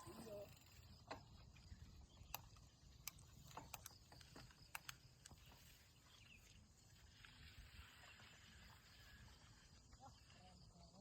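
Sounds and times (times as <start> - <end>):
faint clicks: 2.2 - 5.5.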